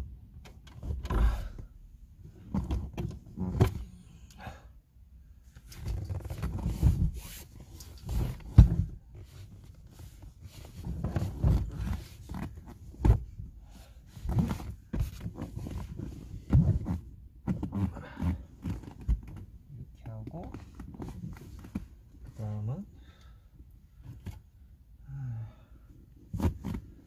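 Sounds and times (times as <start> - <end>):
knocks and thumps in car: 0.3 - 1.7, 2.3 - 4.0, 8.0 - 13.5, 14.1 - 22.0, 26.2 - 27.0.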